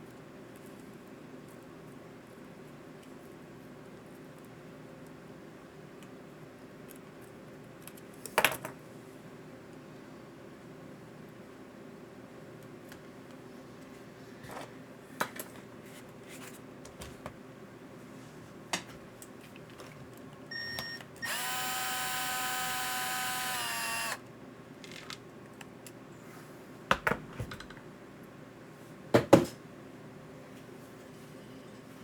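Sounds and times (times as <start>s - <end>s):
small electric motor whining: 20.5s - 24.2s.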